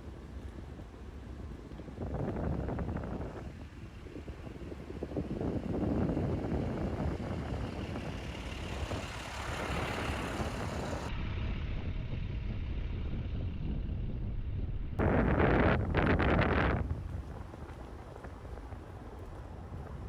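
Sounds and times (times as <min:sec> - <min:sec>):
vehicle running: 0:04.1 - 0:20.0.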